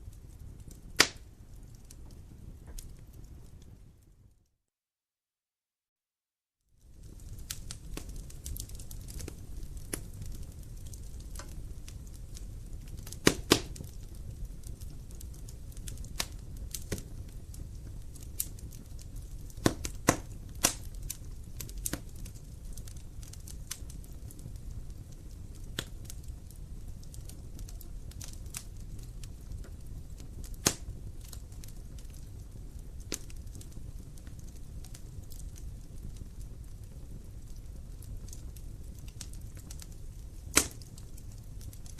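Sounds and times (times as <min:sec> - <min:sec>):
burning logs popping and cracking: 0:00.0 - 0:04.2, 0:06.8 - 0:41.9
fire low rumble: 0:00.0 - 0:04.4, 0:06.7 - 0:41.9.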